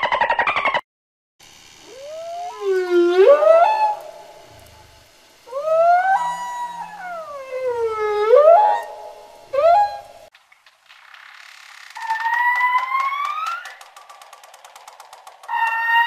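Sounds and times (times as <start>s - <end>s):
whale calls: 1.8s - 10.3s, 11.5s - 14.8s, 15.4s - 16.0s.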